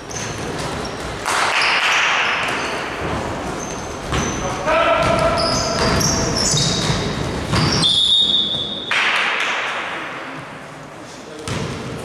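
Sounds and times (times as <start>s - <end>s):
sneakers squeaking on court: 0.0s - 8.9s, 11.3s - 12.0s
whistle blast: 7.7s - 8.9s.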